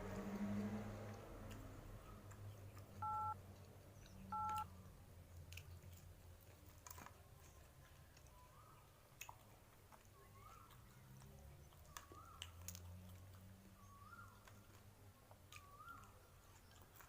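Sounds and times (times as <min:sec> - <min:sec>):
low steady hum: 0:00.0 - 0:10.6
two-tone beeps: 0:03.0 - 0:03.4, 0:04.4 - 0:04.6.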